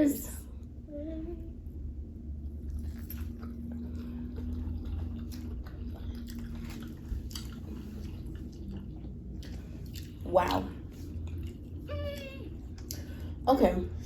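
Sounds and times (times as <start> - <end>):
people chewing and crunching: 2.4 - 13.4.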